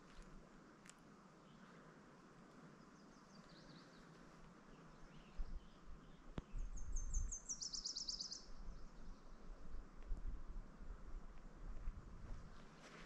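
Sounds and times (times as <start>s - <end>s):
faint bird chirps: 2.7s - 9.7s
songbird trilled song: 4.7s - 9.5s.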